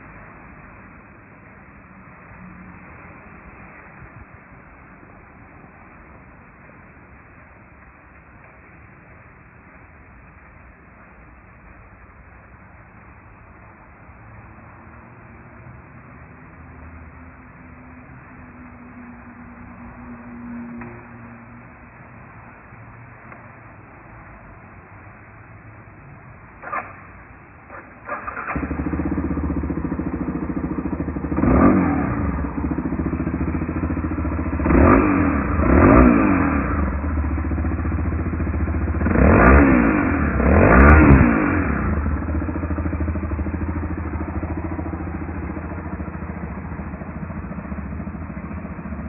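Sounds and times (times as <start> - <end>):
motorcycle engine starting and idling: 26.6 - 49.0.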